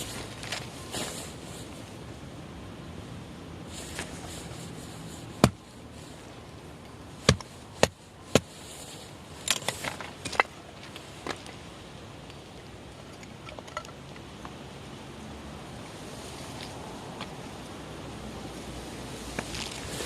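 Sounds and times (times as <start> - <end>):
axe splitting firewood: 5.3 - 5.6, 7.2 - 8.6, 9.4 - 10.5.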